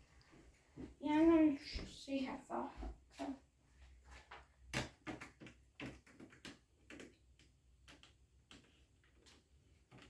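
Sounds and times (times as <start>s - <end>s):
small clicks and taps: 4.3s - 10.0s.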